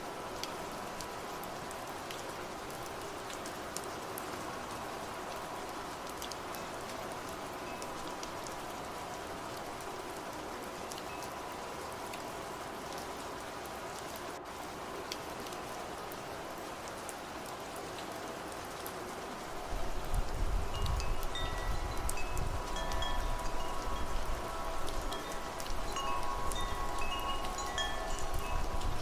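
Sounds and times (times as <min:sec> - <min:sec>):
steady rain falling: 0:00.0 - 0:29.0
gusts of wind: 0:19.3 - 0:29.0
wind chimes ringing: 0:20.7 - 0:29.0.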